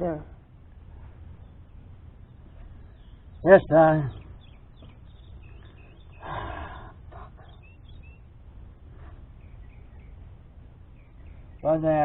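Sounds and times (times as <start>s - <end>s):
faint bird chirps: 0.9s - 12.0s
soft human sigh or murmur: 6.2s - 7.5s.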